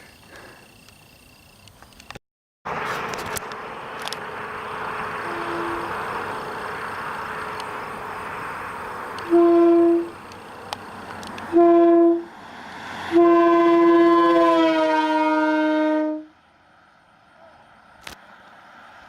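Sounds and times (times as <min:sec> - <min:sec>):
train horn blasts: 0:05.2 - 0:06.0, 0:09.2 - 0:10.2, 0:11.5 - 0:12.3, 0:13.1 - 0:16.3.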